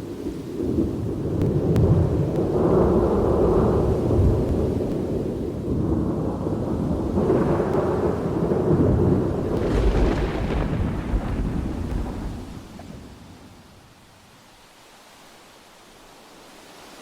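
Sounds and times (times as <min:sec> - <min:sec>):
thunder rumbling: 0:00.0 - 0:14.4
sharp thunder peal: 0:01.2 - 0:13.7.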